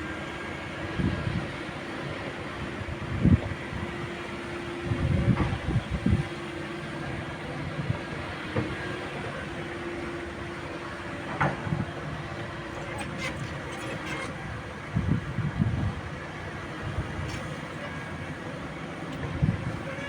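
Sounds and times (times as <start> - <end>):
mini excavator running: 4.6 - 20.0.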